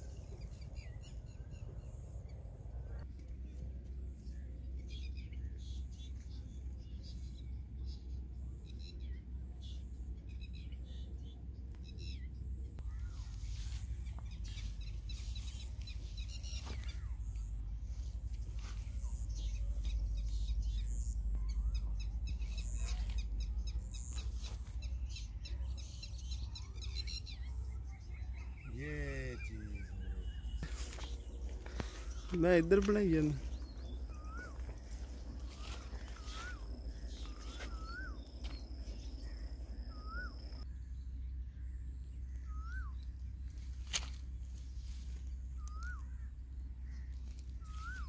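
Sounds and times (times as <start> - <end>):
birds chirping: 0.0 - 48.0
steady low rumble: 0.0 - 48.0
bird whistling: 33.5 - 34.8, 35.4 - 38.3, 39.2 - 40.6, 42.4 - 43.0, 47.6 - 48.0.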